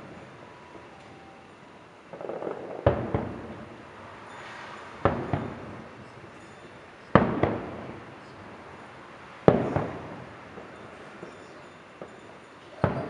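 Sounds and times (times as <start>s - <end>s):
fireworks bursting with booms: 2.1s - 8.8s, 9.4s - 13.0s.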